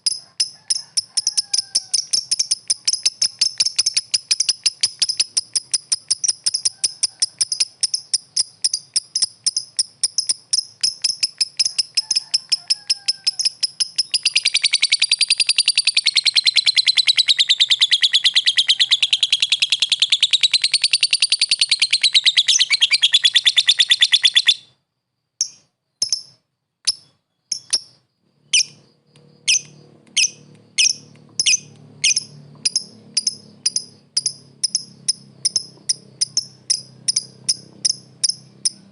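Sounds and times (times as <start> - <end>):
lovebird chattering call: 0.1 - 24.7, 25.4 - 38.9
single bird chirps: 1.3 - 24.8, 25.4 - 38.9
lower warbling bird call: 12.9 - 24.7.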